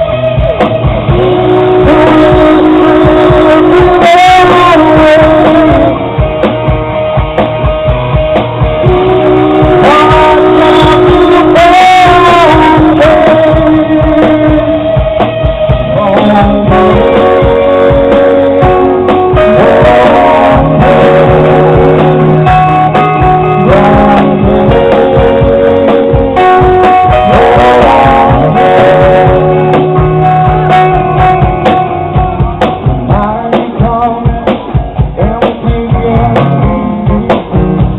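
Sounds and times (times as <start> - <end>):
person singing: 0.0 - 6.4, 8.7 - 37.9
drums: 0.0 - 37.9
electric guitars: 0.0 - 37.9.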